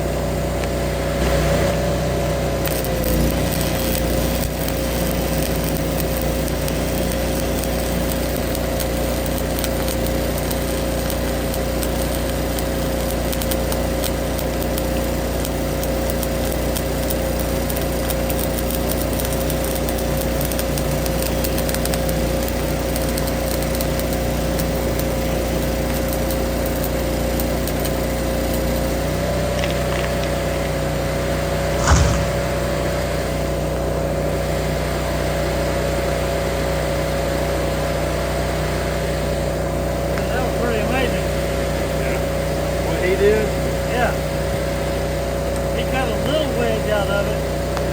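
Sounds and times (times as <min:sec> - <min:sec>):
engine running steadily: 0:00.0 - 0:32.8
sharp knock: 0:31.8 - 0:32.6.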